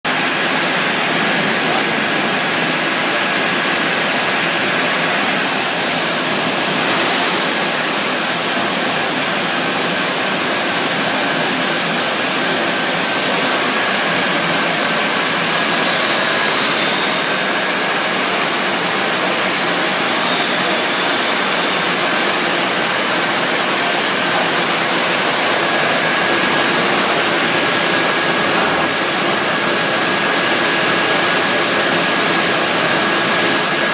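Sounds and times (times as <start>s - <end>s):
machinery hissing: 0.1s - 33.9s
faint high whistle: 15.7s - 17.4s, 20.0s - 21.8s.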